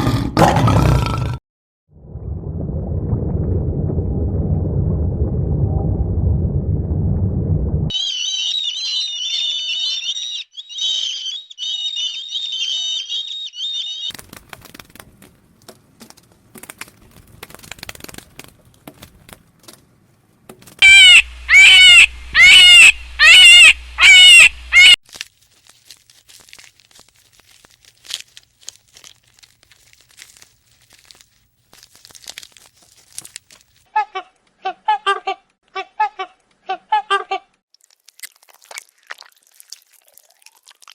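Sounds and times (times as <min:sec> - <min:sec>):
loud rising and falling animal calls: 0:07.9 - 0:14.1, 0:20.8 - 0:25.0
shrill warbling chirping: 0:07.9 - 0:14.1, 0:20.8 - 0:25.0.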